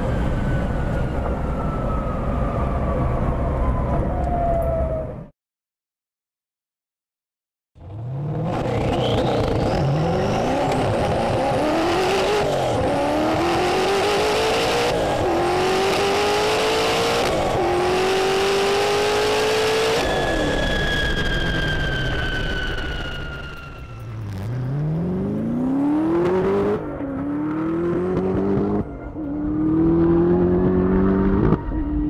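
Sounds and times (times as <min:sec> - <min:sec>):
car engine accelerating through gears: 0:07.8 - 0:21.4, 0:24.2 - 0:32.0
high whine falling in pitch: 0:18.3 - 0:27.1.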